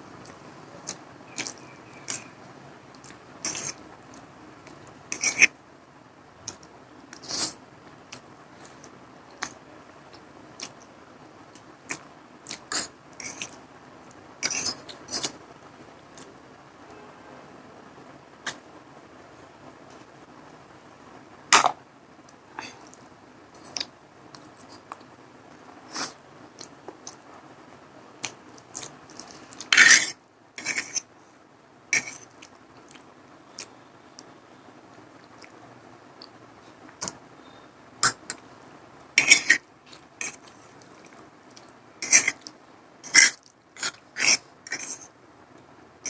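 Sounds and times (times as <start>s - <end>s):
utensil and mouth sounds: 0.1s - 5.6s, 6.4s - 10.9s, 11.5s - 13.7s, 14.4s - 15.4s, 18.4s - 18.7s, 25.8s - 27.3s, 28.2s - 31.1s, 32.0s - 34.3s, 36.2s - 38.4s, 39.2s - 45.1s
person chewing noodles: 0.2s - 5.5s, 6.5s - 10.9s, 11.5s - 13.6s, 25.9s - 27.2s, 28.2s - 31.0s, 32.0s - 34.3s, 35.2s - 35.6s, 39.2s - 45.1s.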